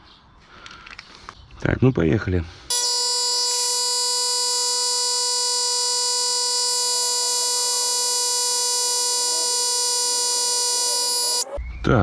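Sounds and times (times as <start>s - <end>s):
tyre inflator buzzing: 2.7s - 11.6s.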